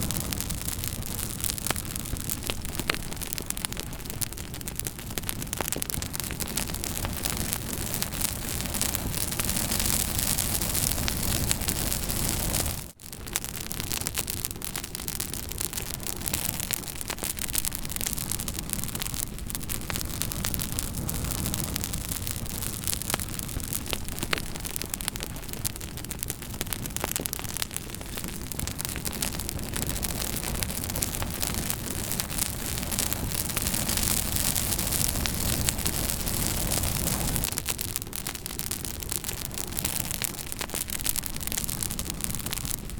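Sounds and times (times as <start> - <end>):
campfire hissing: 0.0 - 42.9
fire crackles and pops: 0.0 - 42.9.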